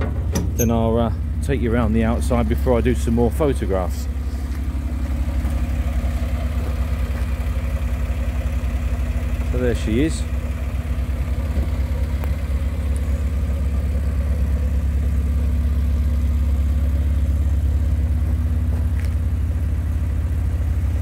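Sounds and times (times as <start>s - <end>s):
van engine idling: 0.0s - 21.0s.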